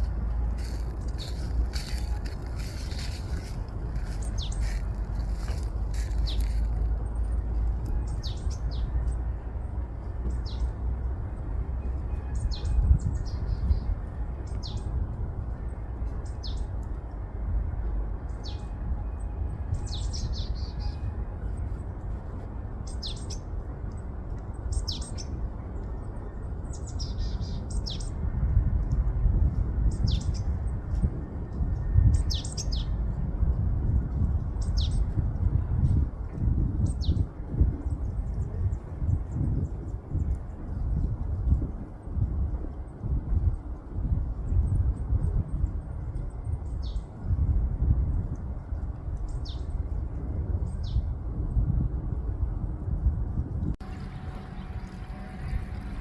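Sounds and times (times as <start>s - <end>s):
small birds chirping: 0.0s - 7.3s
wind rumble on microphone: 0.0s - 56.0s.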